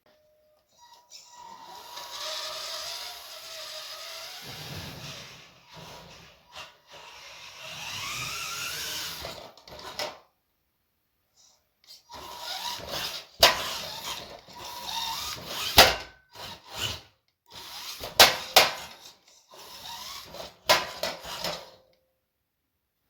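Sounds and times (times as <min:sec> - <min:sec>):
rough scraping and rubbing: 0:04.2 - 0:06.4.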